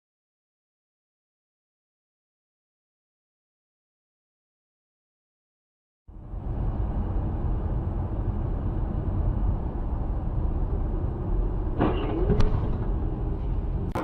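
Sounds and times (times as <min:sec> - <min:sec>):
moving vehicle rumble: 0:06.1 - 0:14.0.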